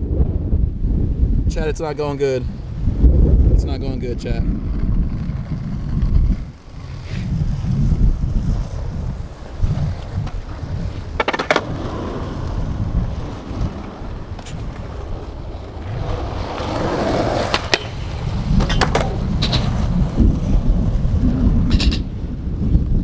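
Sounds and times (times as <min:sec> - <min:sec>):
skateboard wheels rolling on concrete: 0:00.0 - 0:23.0
wind buffeting microphone: 0:00.0 - 0:23.0
skateboard wooden clacks: 0:04.7 - 0:20.6.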